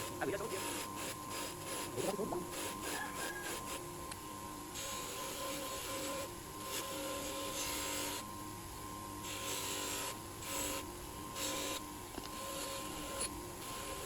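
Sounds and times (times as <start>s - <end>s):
hand rasp strokes: 0.0s - 3.8s.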